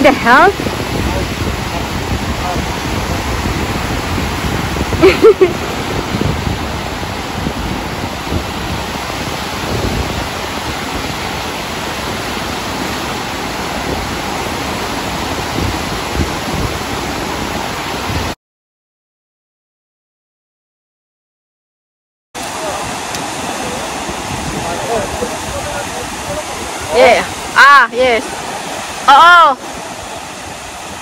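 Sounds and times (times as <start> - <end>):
breaking surf: 0.0 - 18.4, 22.4 - 31.0
wind on microphone: 0.0 - 18.4, 22.4 - 31.0.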